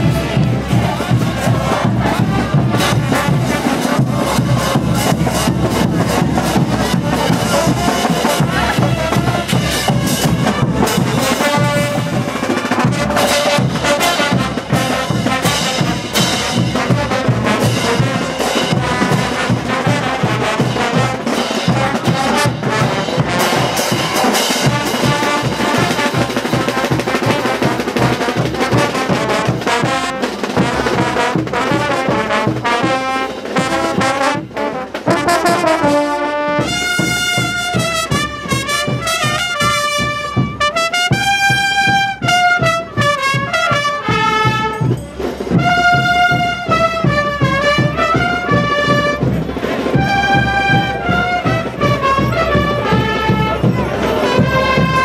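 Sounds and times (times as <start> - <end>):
drums beating: 0.0 - 55.0
trumpets and trombones melody: 0.0 - 55.0.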